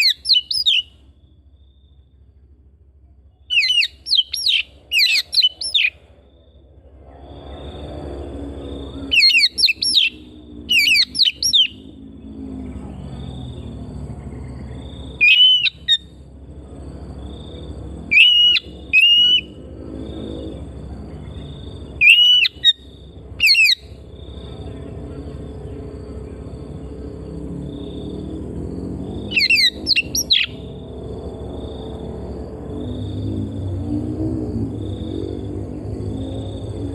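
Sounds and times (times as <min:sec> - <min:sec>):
bird singing whistled phrases: 0:00.0 - 0:00.9, 0:03.5 - 0:05.9, 0:09.1 - 0:11.8, 0:15.2 - 0:16.0, 0:18.1 - 0:19.5, 0:22.0 - 0:22.8, 0:23.4 - 0:23.8, 0:29.3 - 0:30.6.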